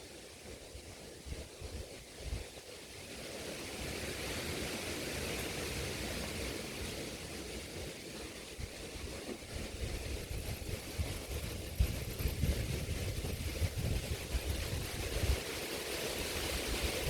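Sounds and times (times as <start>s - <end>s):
wind buffeting microphone: 6.2s - 17.0s.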